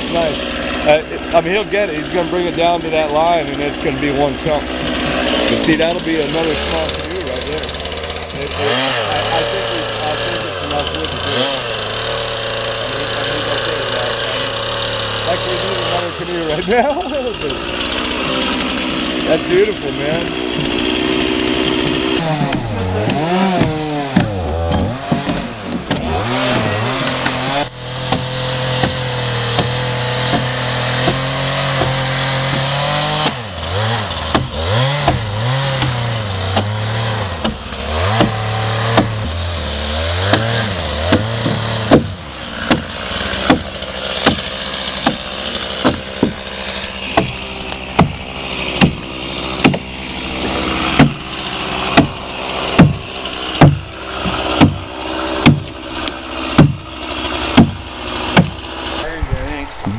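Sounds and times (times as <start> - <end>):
chainsaw cutting log: 0.0 - 59.9
sharp knocks: 20.1 - 33.5, 34.2 - 59.9.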